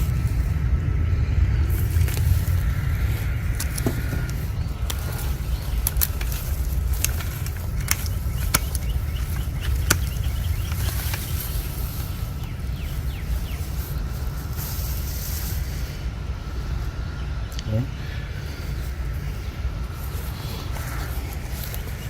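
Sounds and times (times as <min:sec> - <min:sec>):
low rumble: 0:00.0 - 0:22.0
sharp clicks: 0:03.5 - 0:11.7.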